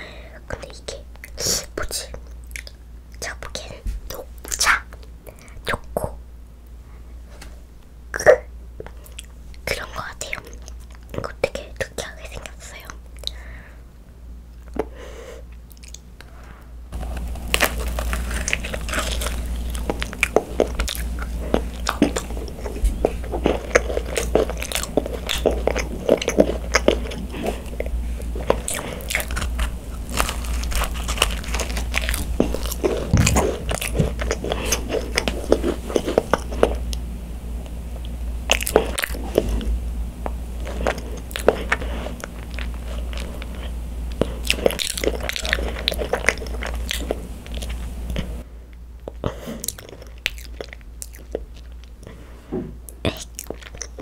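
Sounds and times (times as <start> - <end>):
crunchy chewing with crackles: 0.5 - 6.2, 8.2 - 13.5, 14.5 - 54.0
macaron bite: 17.0 - 36.9, 40.6 - 48.2.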